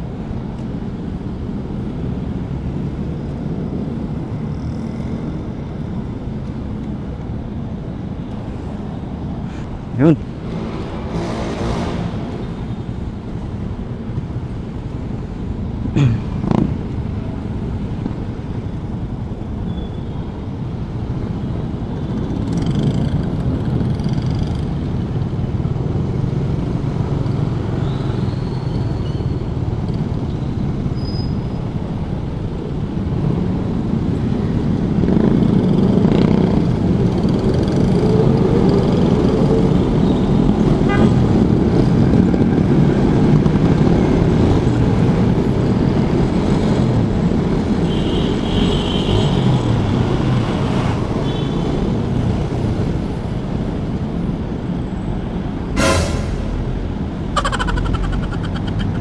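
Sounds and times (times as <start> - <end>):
wind and road noise: 0.0 - 59.0
short loud sounds: 55.8 - 56.8.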